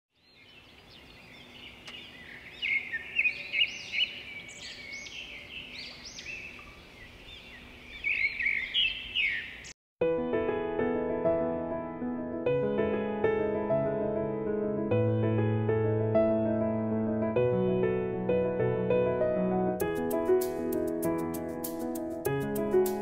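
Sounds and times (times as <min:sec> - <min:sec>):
small birds chirping: 0:00.1 - 0:09.8
piano music: 0:10.0 - 0:23.0.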